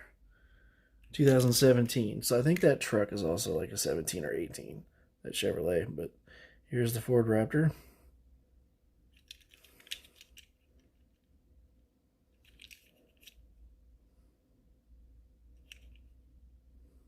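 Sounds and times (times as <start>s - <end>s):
toy truck clicks and rustle: 9.1s - 11.2s, 12.4s - 13.5s, 15.6s - 16.1s.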